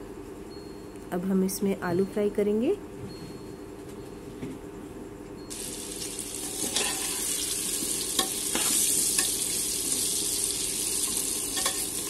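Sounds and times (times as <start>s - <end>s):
potatoes sizzling in oil: 5.5s - 12.0s.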